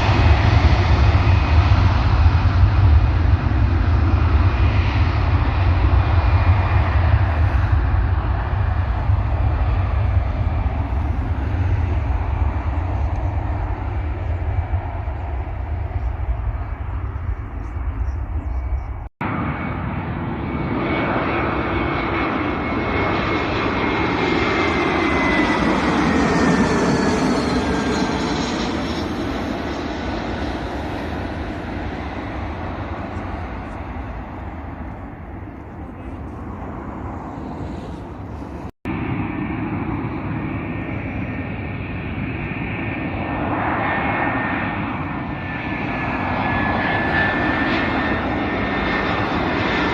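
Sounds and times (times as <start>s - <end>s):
airliner engines passing: 0.0s - 49.9s.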